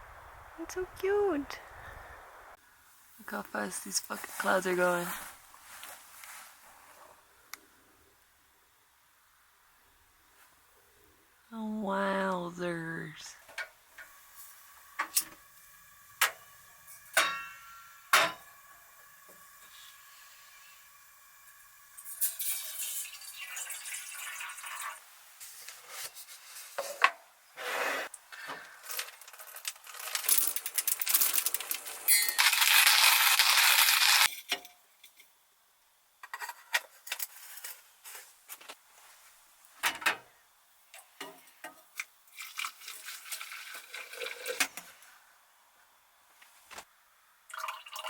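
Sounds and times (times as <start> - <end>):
loud steady hiss: 12.6 - 23.2
small hard objects clattering: 28.8 - 34.5.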